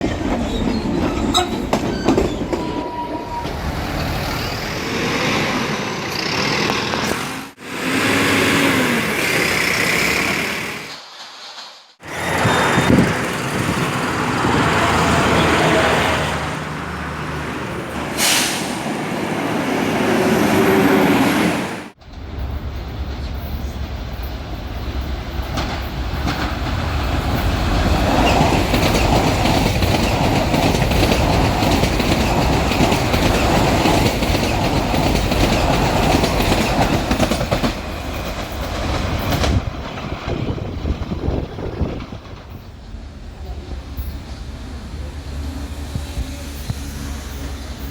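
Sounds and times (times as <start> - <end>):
train wheels clattering on rails: 0.0 - 5.3, 8.2 - 18.9, 21.9 - 44.4
wheel squeals: 0.4 - 7.2, 12.0 - 16.4.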